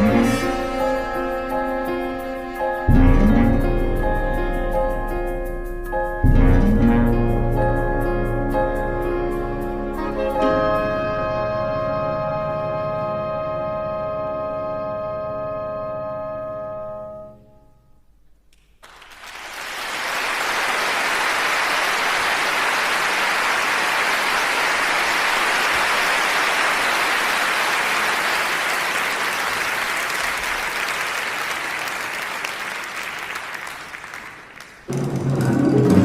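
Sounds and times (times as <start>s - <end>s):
audience applauding: 18.6s - 36.0s.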